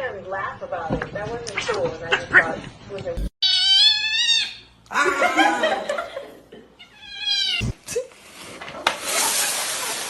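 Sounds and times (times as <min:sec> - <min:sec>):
cat meowing: 0:03.4 - 0:04.7, 0:06.9 - 0:07.8.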